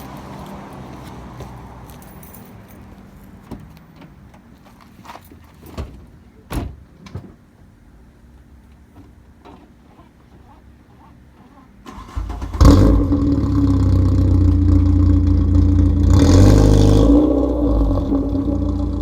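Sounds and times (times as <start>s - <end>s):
car keys jangling: 1.9s - 3.4s
car door opening and shutting: 5.7s - 7.4s.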